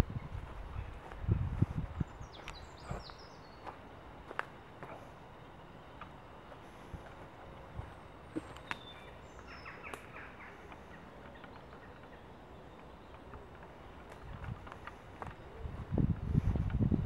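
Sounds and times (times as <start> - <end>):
bird calls and chirps: 2.0 - 3.8, 8.3 - 14.6.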